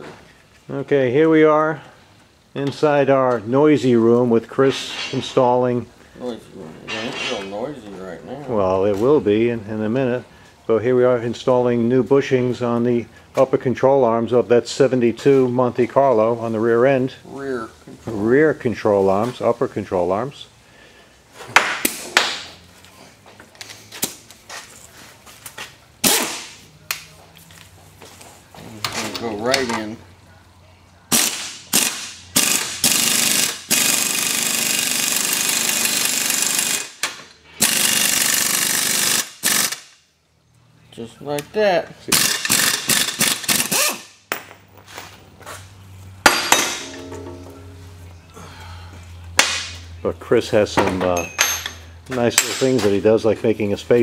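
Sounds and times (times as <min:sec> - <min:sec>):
pneumatic air hammer chattering: 0:31.1 - 0:40.0, 0:42.1 - 0:44.2
metal tools knocking and clanking: 0:46.3 - 0:48.0, 0:50.8 - 0:52.9.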